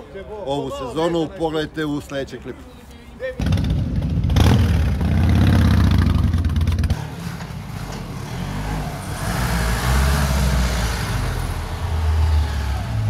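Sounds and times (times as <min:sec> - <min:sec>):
motorcycle engine running: 0:03.4 - 0:07.0
cars driving slowly past: 0:03.8 - 0:13.0.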